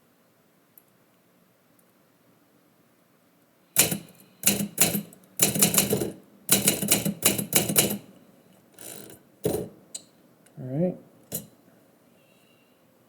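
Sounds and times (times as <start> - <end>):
typewriter keys striking: 3.8 - 8.1.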